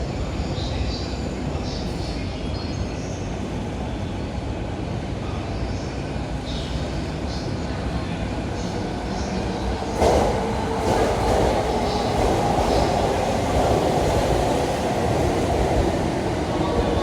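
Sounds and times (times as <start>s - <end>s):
train wheels rumbling on rails: 6.3s - 17.0s.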